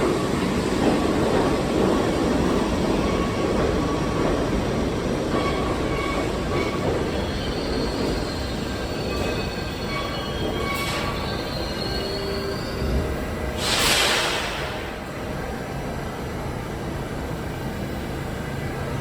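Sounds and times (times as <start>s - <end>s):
subway train rumbling on rails: 0.0s - 19.0s
high wheel squeal: 5.4s - 13.1s.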